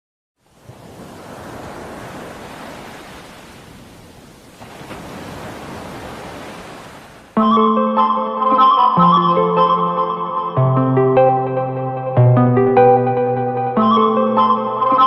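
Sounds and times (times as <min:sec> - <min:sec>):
wind: 0:00.4 - 0:07.4
sea surf: 0:00.4 - 0:10.6.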